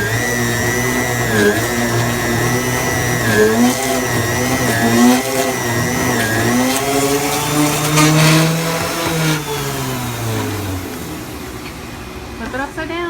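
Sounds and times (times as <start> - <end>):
blender motor running: 0.0 - 12.4.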